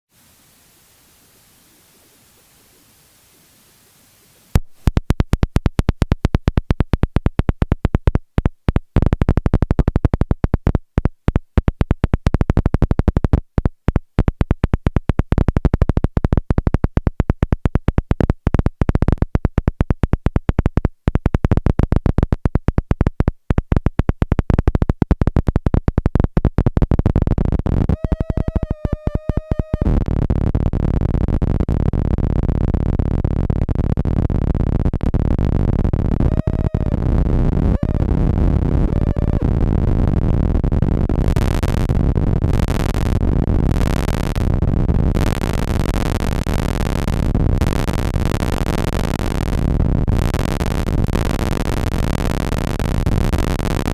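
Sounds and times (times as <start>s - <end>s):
synth clicks and buzzing pulses: 4.4s - 53.9s
wavering synth tone: 28.0s - 29.9s, 36.2s - 38.2s, 38.8s - 39.5s
dense low buzz: 29.9s - 53.9s.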